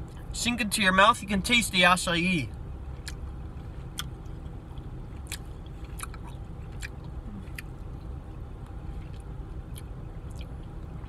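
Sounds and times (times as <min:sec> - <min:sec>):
mouth chewing candy: 0:05.2 - 0:07.8.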